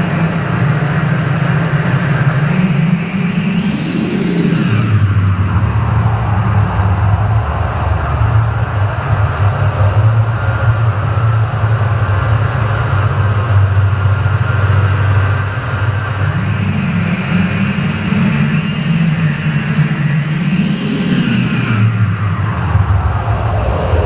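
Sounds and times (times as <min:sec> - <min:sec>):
low synthesizer drone: 0:00.0 - 0:24.0.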